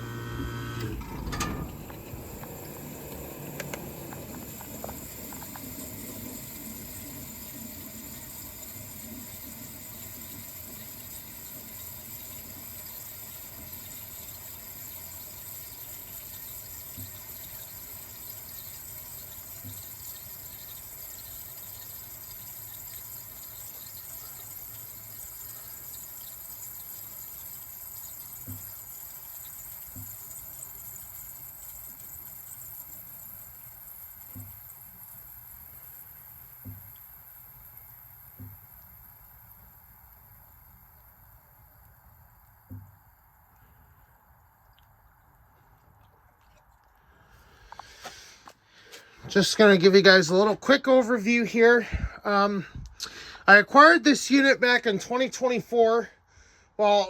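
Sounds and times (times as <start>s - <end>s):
air conditioner hum: 0.0s - 45.8s
faint steady hiss: 0.0s - 57.0s
air conditioner click: 0.4s - 5.8s.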